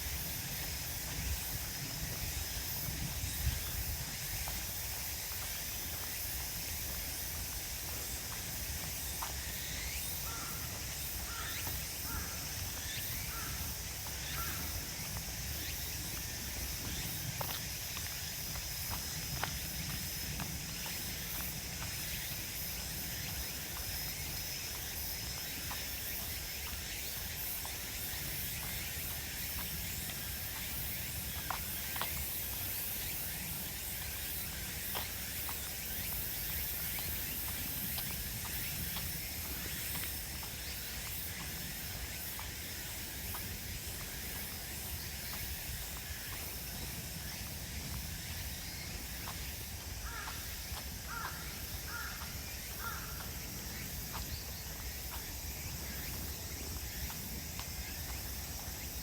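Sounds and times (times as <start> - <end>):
insects chorus: 0.0 - 59.0
light footsteps on path: 0.0 - 59.0.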